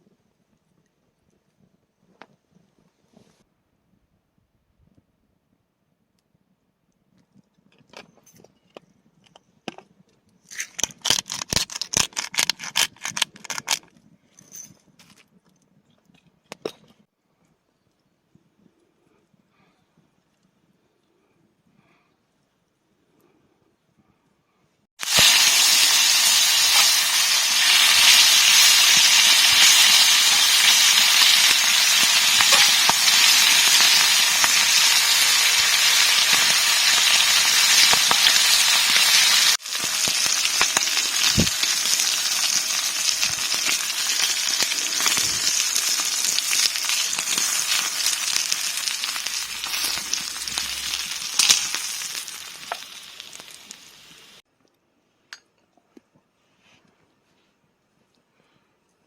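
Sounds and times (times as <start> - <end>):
food sizzling in a pan: 25.0 - 54.4.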